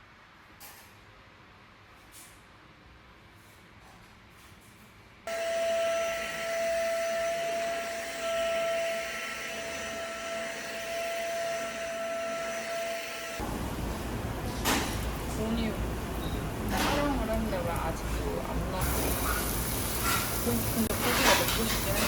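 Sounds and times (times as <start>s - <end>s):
stick vacuum motor whine: 5.3s - 13.4s.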